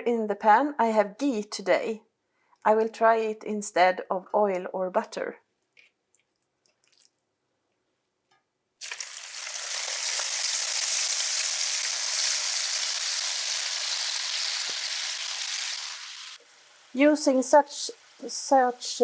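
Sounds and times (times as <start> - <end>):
chicken sizzling in a pan: 8.8 - 19.0.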